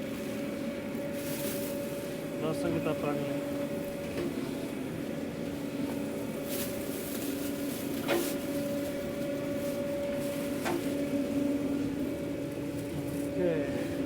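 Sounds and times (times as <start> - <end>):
electrical-mechanical equipment hum: 0.0 - 14.0.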